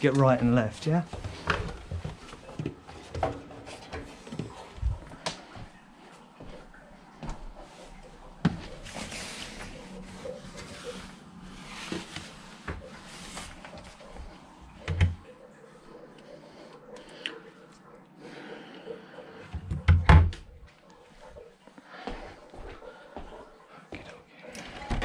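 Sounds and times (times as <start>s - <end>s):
rustling of handled things: 0.0s - 5.7s, 6.4s - 14.7s.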